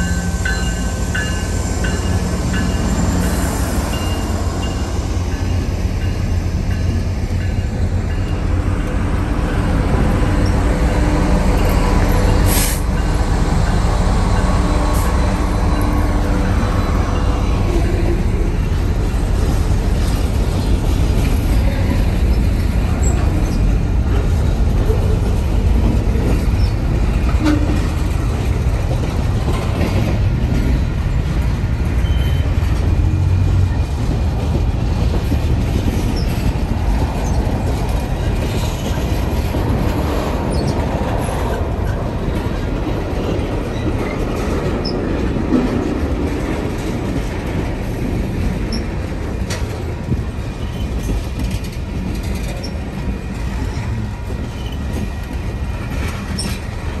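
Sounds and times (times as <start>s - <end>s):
train wheels rumbling on rail: 0.0s - 57.0s
high wheel squeaks: 32.0s - 32.8s.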